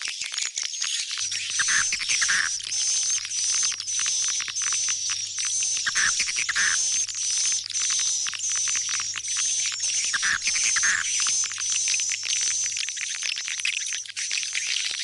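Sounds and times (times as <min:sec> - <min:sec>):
rapid clicks and high twittering chirps: 0:00.0 - 0:15.0
lower rougher bird calls: 0:01.4 - 0:02.6, 0:05.8 - 0:07.0, 0:10.0 - 0:11.2.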